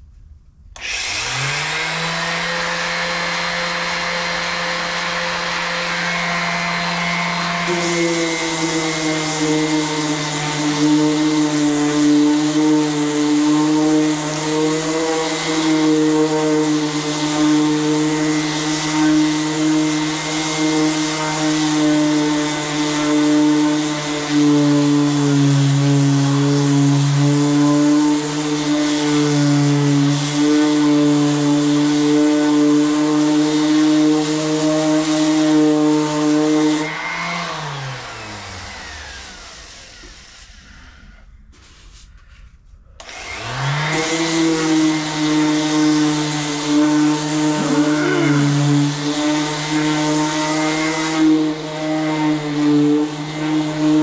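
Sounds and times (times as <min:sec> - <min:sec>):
sander spinning down: 0:00.8 - 0:41.9, 0:43.0 - 0:54.0
power sander sanding metal: 0:00.8 - 0:42.0, 0:43.0 - 0:54.0.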